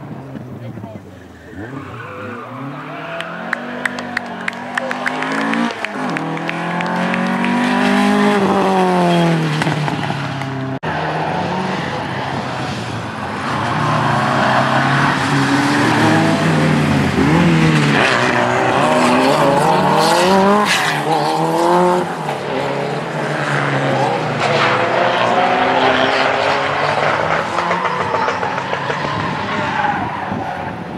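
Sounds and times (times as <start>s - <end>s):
rally car engines revving: 0.0s - 30.9s.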